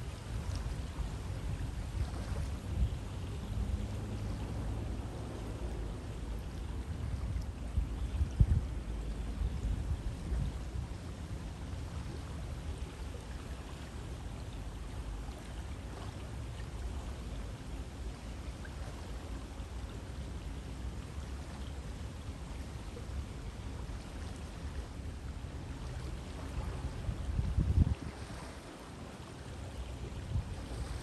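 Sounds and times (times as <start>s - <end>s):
river water rushing: 0.0s - 7.7s, 8.7s - 31.0s.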